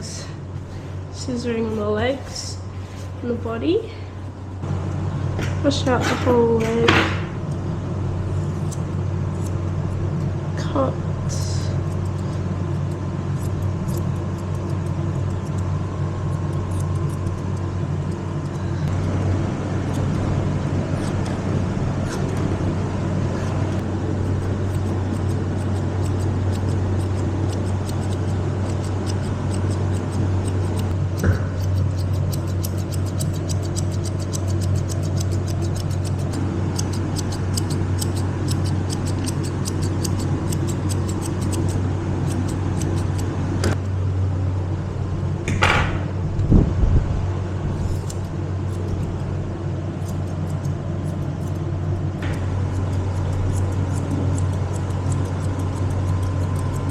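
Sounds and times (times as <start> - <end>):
steady low hum: 0.0 - 56.9
scissors snipping hair: 11.8 - 15.7, 16.3 - 19.2, 23.7 - 43.3, 47.8 - 49.3, 50.0 - 56.9
loud knocks: 45.5 - 46.1.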